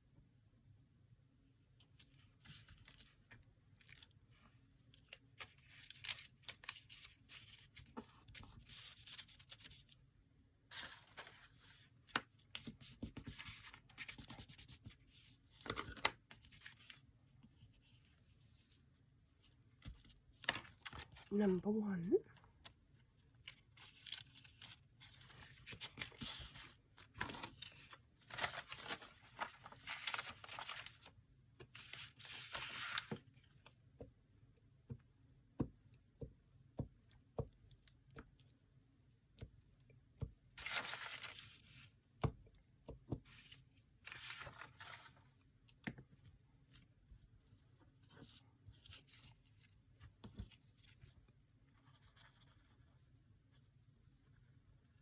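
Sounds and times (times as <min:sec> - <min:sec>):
paper rustling and tearing: 0:23.5 - 0:31.1, 0:31.8 - 0:33.1, 0:40.6 - 0:41.8.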